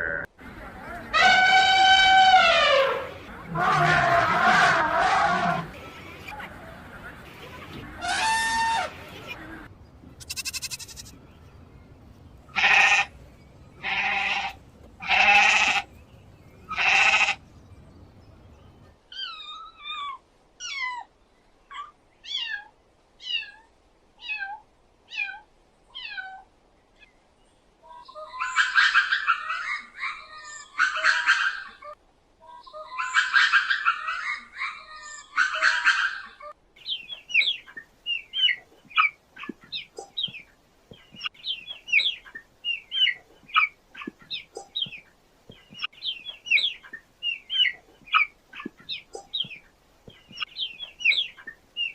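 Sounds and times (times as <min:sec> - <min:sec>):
bird chirping: 0:09.0 - 0:19.7, 0:36.8 - 0:51.9
goat bleating: 0:10.2 - 0:11.2, 0:12.5 - 0:13.1, 0:13.8 - 0:15.9, 0:16.7 - 0:17.4
harsh bird chattering: 0:10.2 - 0:11.2.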